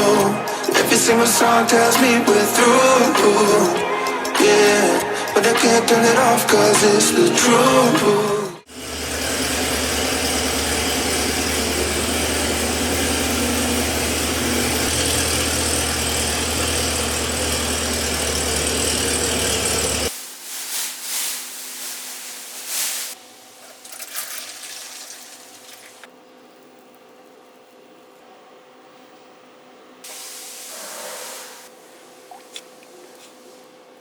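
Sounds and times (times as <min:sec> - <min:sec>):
machine humming: 0:08.6 - 0:20.1
short hisses: 0:30.1 - 0:31.8.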